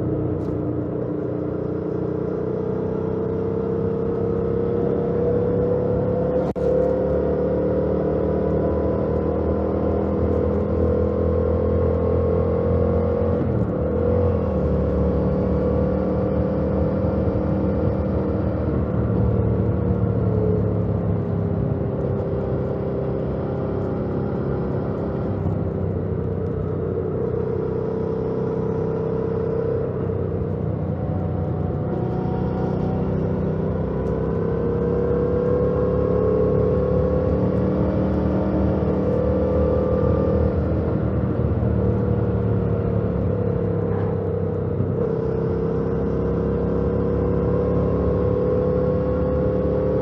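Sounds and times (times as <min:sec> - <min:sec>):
motorcycle engine running: 0:13.2 - 0:50.0.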